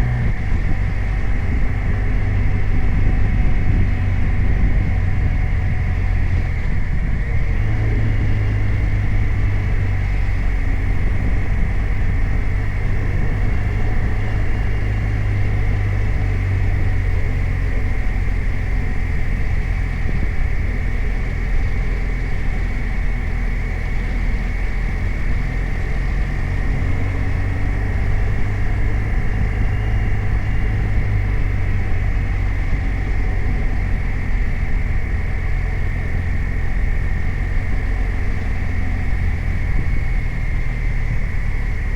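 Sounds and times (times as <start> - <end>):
motorcycle engine rumbling: 0.0 - 41.9.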